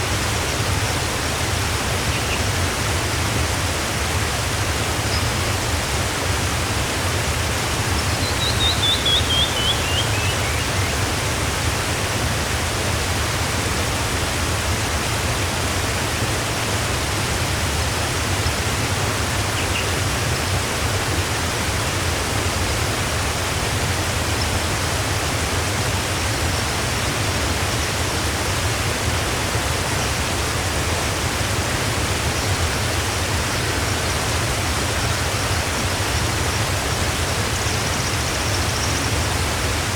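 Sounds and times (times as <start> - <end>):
waterfall rushing: 0.0 - 39.9
bird singing: 8.0 - 11.0.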